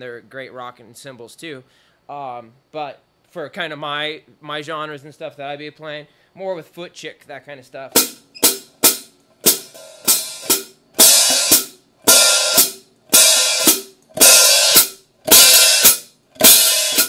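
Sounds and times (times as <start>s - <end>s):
hi-hats played on a drum kit: 7.9s - 17.0s.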